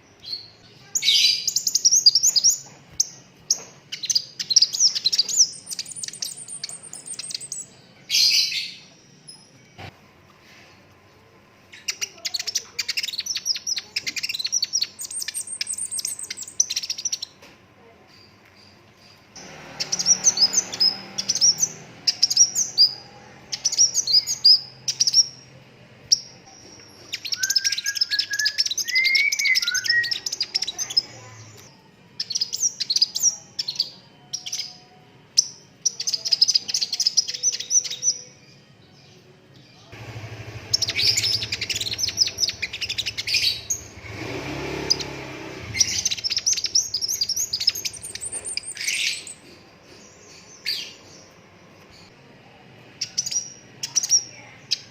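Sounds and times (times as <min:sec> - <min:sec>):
bird twittering and chirping: 0:00.2 - 0:09.6, 0:11.7 - 0:17.4, 0:18.2 - 0:25.5, 0:26.1 - 0:34.8, 0:40.6 - 0:52.1, 0:53.0 - 0:54.9
lower whistled bird phrase: 0:27.1 - 0:31.0.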